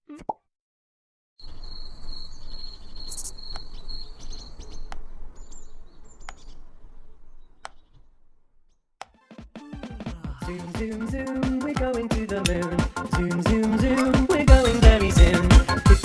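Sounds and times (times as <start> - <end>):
high steady trill: 9.9 - 16.0.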